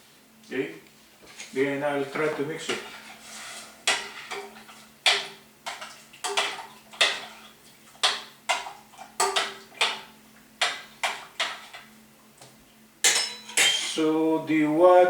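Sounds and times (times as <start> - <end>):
utensil stirring water in pot: 2.6 - 11.9
utensil knocking against pot: 8.0 - 11.7.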